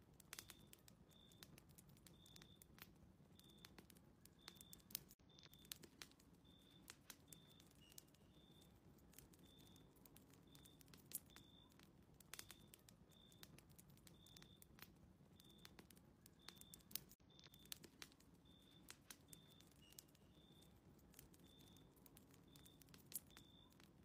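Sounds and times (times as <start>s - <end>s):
fireplace crackling: 0.0s - 24.0s.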